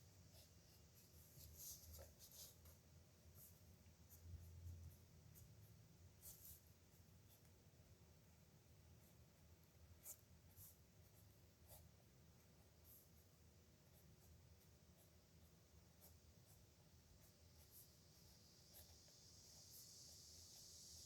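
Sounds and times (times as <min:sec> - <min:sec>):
soft high hiss: 0:00.0 - 0:21.0
pen scratching on paper: 0:00.3 - 0:02.8, 0:09.0 - 0:13.2, 0:13.8 - 0:18.9.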